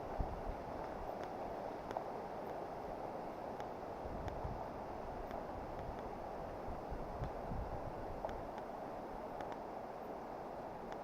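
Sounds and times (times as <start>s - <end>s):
wind rush on microphone: 0.0s - 2.0s, 2.7s - 11.0s
faint ticks: 0.8s - 2.6s, 3.6s - 4.5s, 5.2s - 6.1s, 7.2s - 7.4s, 8.2s - 8.7s, 9.3s - 9.7s.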